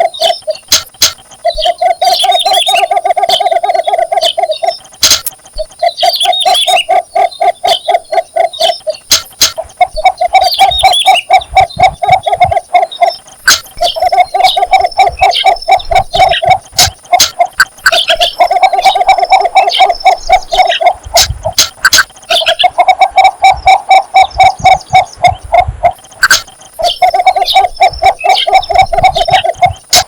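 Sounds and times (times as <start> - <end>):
bird chirping: 0.0 - 30.0
bird low clucking call: 0.0 - 30.0
sharp clicks: 0.2 - 2.8, 4.3 - 6.4, 8.7 - 11.0, 11.6 - 18.5, 20.0 - 22.6, 24.8 - 27.6.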